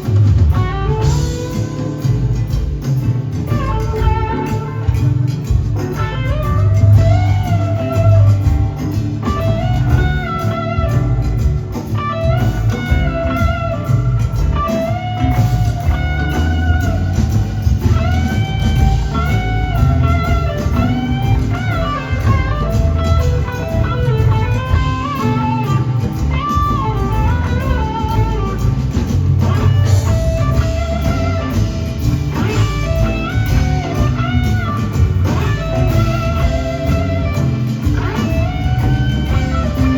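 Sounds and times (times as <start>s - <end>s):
bass guitar: 0.0s - 39.9s
drum kit: 0.0s - 39.9s
electric guitar solo: 0.0s - 39.9s.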